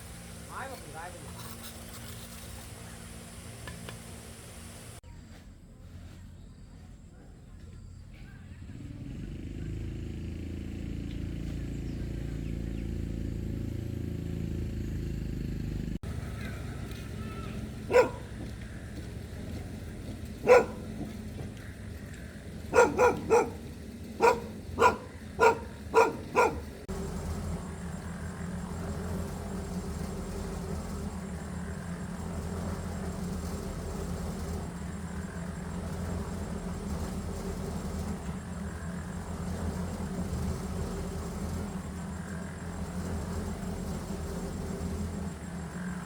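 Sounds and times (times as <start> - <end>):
low motor hum: 0.0 - 5.1, 5.8 - 46.0
dog barking: 17.8 - 18.4, 20.4 - 21.1, 22.7 - 26.8.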